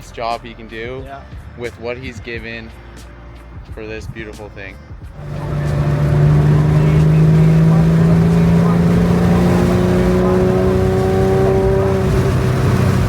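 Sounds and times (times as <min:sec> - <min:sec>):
car engine running: 0:05.2 - 0:13.0.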